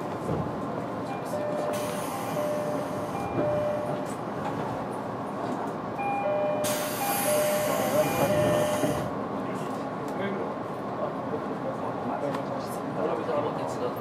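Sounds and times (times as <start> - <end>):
train wheels rolling on rails: 0.0 - 10.2.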